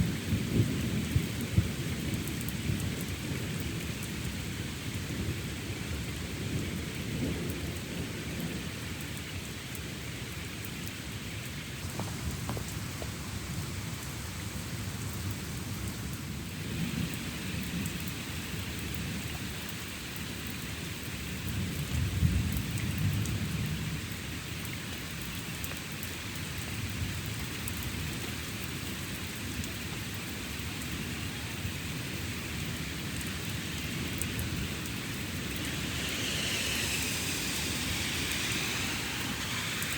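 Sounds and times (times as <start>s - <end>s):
steady rain falling: 0.0s - 39.9s
thunder rumbling: 32.5s - 39.9s.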